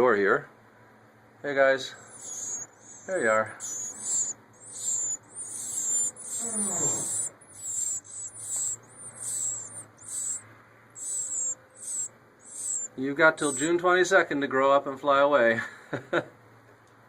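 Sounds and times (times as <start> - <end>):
baby birds chirping: 1.8 - 13.8.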